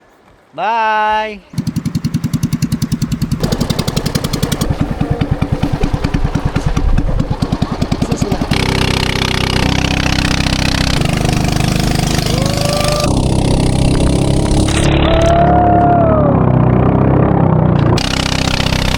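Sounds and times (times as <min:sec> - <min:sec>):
boat engine chugging: 0:01.5 - 0:18.9
short rising and falling tones: 0:01.6 - 0:18.9.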